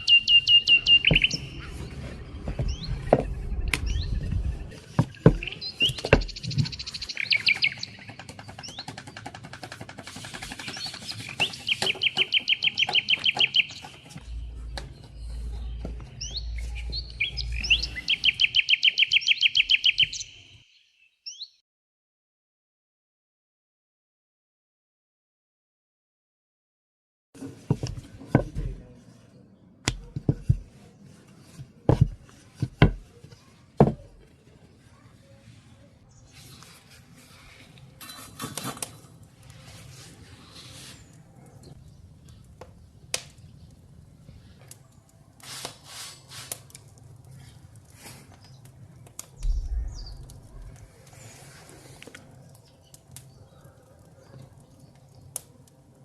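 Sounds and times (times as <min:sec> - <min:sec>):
songbird trills: 0:00.0 - 0:01.8, 0:02.7 - 0:08.9, 0:10.6 - 0:14.2, 0:14.8 - 0:21.6, 0:49.4 - 0:50.8
bird chirps: 0:00.0 - 0:09.2, 0:10.5 - 0:21.6, 0:49.4 - 0:50.8.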